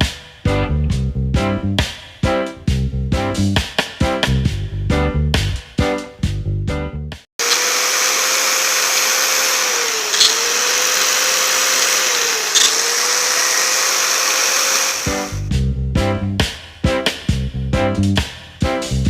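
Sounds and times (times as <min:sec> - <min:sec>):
lathe motor whining: 0:07.4 - 0:15.4
short scraping click: 0:09.9 - 0:12.9.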